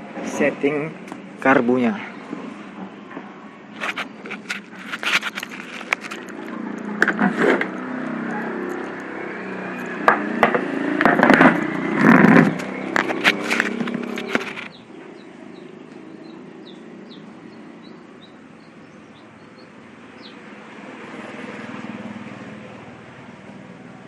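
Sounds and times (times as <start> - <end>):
sharp clicks and scrapes: 3.1 - 14.9
two-stroke engine running: 5.8 - 24.0.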